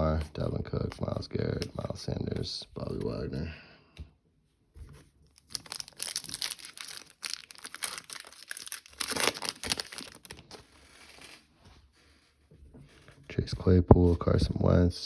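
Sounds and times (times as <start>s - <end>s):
foil wrapper tearing and crinkling: 5.4s - 11.4s.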